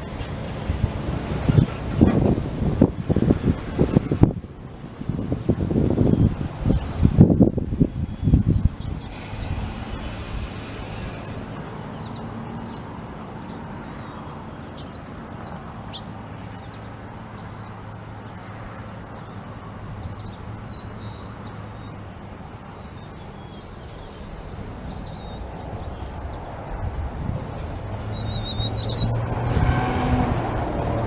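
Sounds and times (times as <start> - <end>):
small birds chirping: 5.0 - 29.8.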